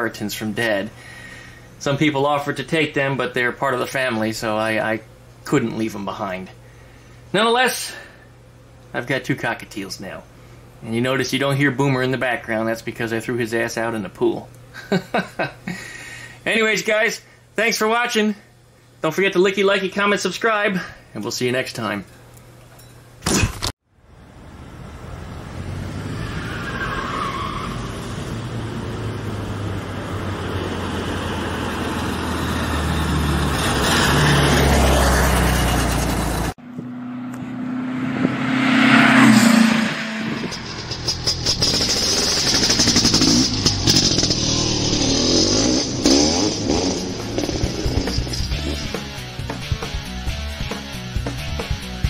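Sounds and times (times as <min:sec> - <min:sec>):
car engine accelerating: 0:24.4 - 0:50.8.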